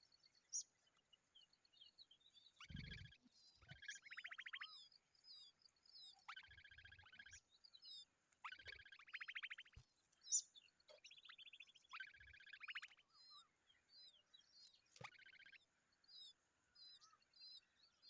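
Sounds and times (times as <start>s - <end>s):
thin high bird chirps: 2.5s - 15.7s
harsh rattling bird calls: 2.6s - 4.9s, 6.1s - 7.4s, 8.4s - 13.4s, 15.0s - 15.7s.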